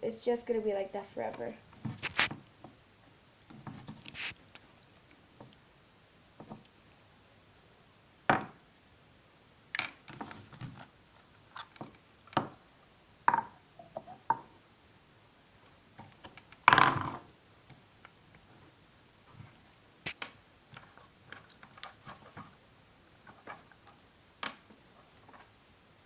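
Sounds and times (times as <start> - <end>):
hands handling slime: 1.8 - 2.4, 3.5 - 4.8
toy figures knocking and clicking: 23.2 - 25.5.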